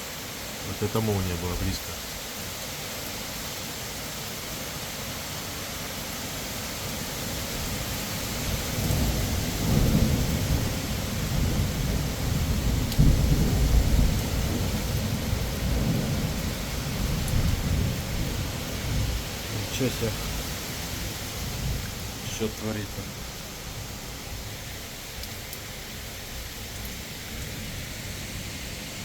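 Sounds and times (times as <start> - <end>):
heavy rain hissing: 0.0 - 29.0
rolling thunder rumble: 8.8 - 23.1.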